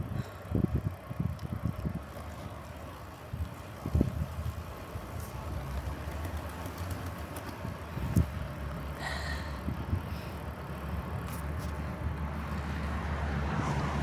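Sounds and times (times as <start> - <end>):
bicycle riding rumble: 0.0 - 14.0.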